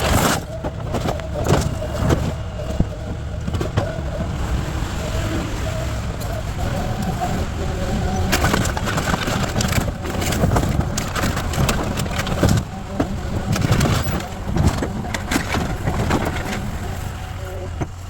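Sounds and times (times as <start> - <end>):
debris crunching: 0.0 - 18.0
low engine rumble: 0.0 - 18.0
timber splintering: 7.6 - 18.0.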